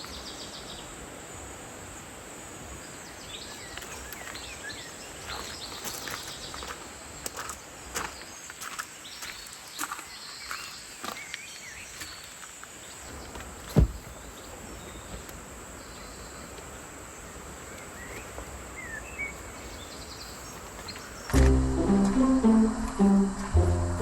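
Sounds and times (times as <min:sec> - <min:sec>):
music: 0:21.3 - 0:24.0.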